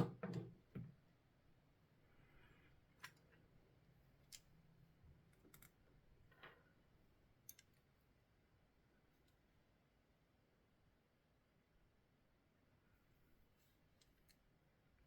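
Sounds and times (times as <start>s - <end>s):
small tools clicking and tapping: 7.5s - 7.8s.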